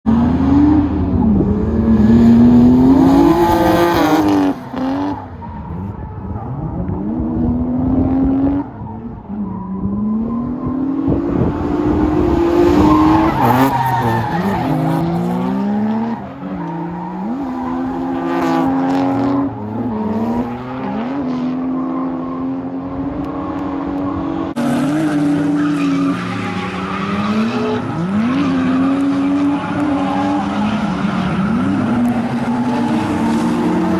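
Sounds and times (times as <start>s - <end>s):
car engine revving: 0.1s - 33.9s
tyres squealing: 12.6s - 19.8s.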